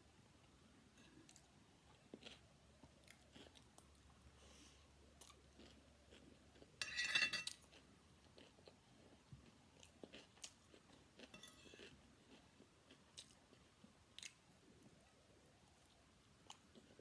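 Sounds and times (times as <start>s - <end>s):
quiet chewing: 1.0s - 6.8s, 7.5s - 15.0s
metal spoon scraping plate: 6.8s - 7.6s, 11.3s - 11.8s.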